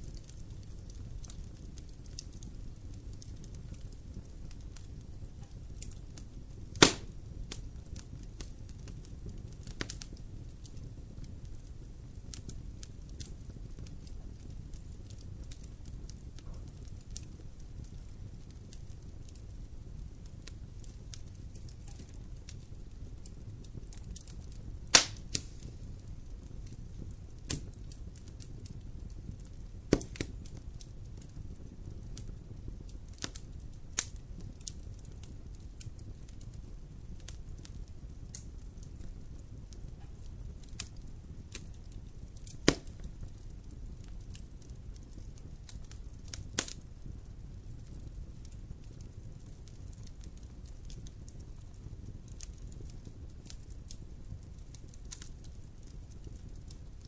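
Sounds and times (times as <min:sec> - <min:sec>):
fire crackling in fireplace: 0:00.0 - 0:57.0.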